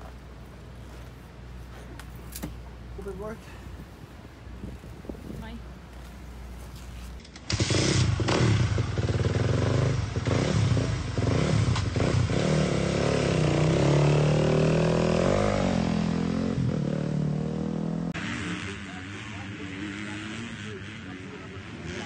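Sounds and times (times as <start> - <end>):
motocross bike engine revving: 7.1 - 22.0.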